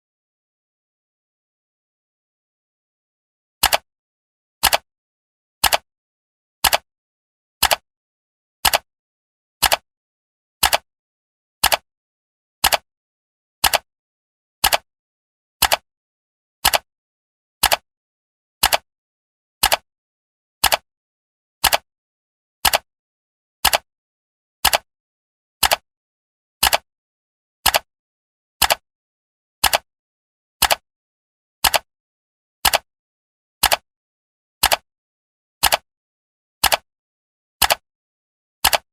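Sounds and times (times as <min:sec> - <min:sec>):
clock ticking: 0:14.6 - 0:14.8, 0:15.6 - 0:15.8, 0:17.6 - 0:17.8, 0:21.6 - 0:21.8, 0:23.6 - 0:23.8, 0:24.6 - 0:24.8, 0:29.6 - 0:29.8, 0:30.6 - 0:30.8, 0:32.6 - 0:32.8, 0:33.6 - 0:33.8, 0:34.6 - 0:34.8, 0:35.6 - 0:35.8, 0:36.6 - 0:36.8, 0:37.6 - 0:37.8, 0:38.6 - 0:38.9.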